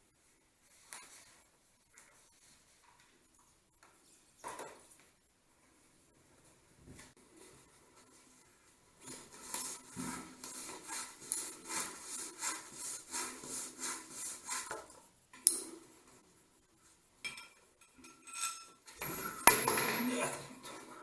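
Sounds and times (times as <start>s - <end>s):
rhythmic hand rubbing: 7.3s - 14.9s.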